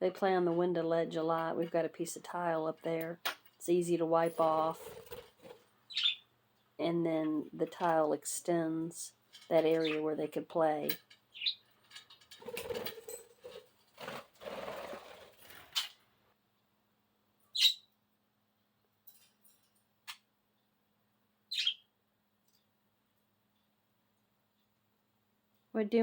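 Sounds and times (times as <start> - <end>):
budgie chirping: 5.9 - 6.3, 11.3 - 11.7, 17.5 - 17.9, 21.5 - 21.9.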